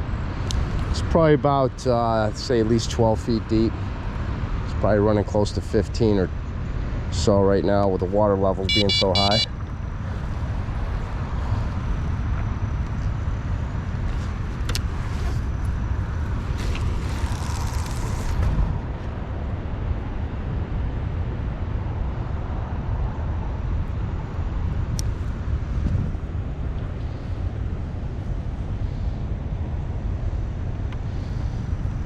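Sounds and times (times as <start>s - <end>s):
wind buffeting microphone: 23.1s - 32.0s.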